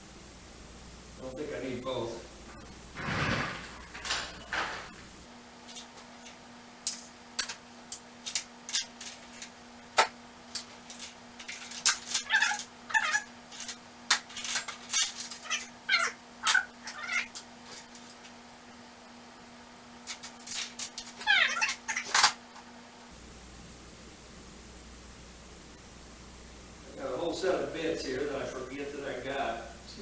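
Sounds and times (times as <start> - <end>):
steady low hum: 0.0 - 21.1, 22.4 - 30.0
metal tools clinking in toolbox: 5.7 - 9.5, 10.5 - 18.2, 20.1 - 22.4.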